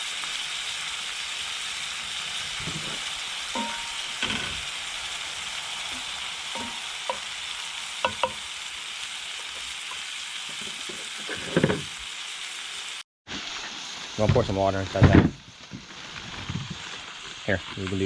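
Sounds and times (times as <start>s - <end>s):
food sizzling in a frying pan: 0.0s - 18.0s
utensil clinking on pan: 3.6s - 4.2s, 6.6s - 7.3s, 8.0s - 8.4s.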